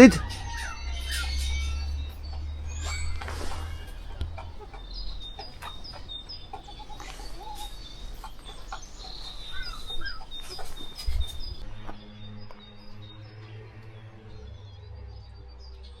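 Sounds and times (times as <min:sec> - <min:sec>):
chickens clucking: 0:00.0 - 0:11.6
small birds chirping: 0:00.0 - 0:11.6.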